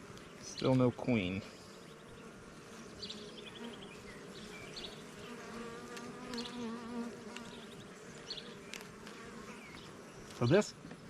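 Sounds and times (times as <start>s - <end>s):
bees buzzing: 0.0s - 11.0s
faint clicks: 5.9s - 6.6s, 7.3s - 7.6s, 8.2s - 10.4s.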